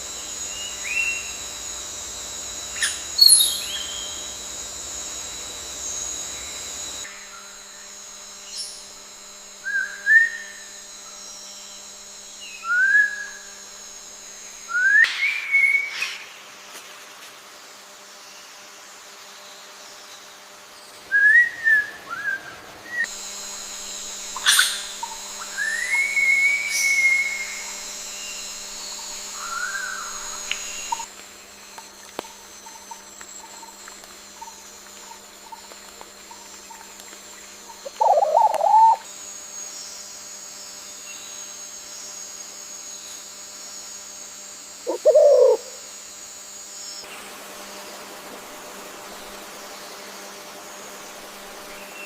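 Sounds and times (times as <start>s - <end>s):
high hiss of forest ambience: 0.0s - 52.0s
birds whistling: 2.8s - 4.2s, 24.4s - 27.7s.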